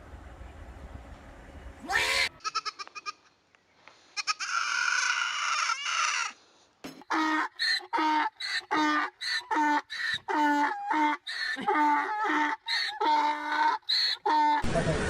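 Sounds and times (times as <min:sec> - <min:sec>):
animal calling: 0:07.1 - 0:14.6.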